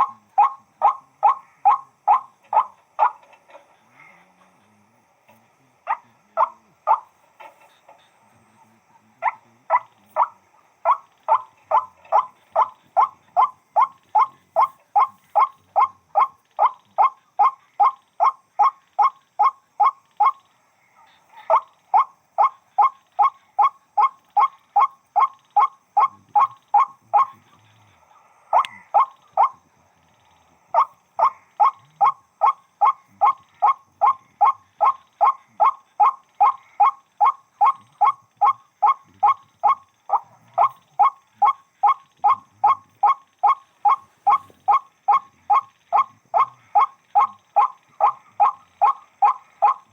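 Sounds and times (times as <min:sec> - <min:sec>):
waterhen calling: 0:00.0 - 0:03.4, 0:05.9 - 0:07.2, 0:08.4 - 0:27.6, 0:28.5 - 0:49.9.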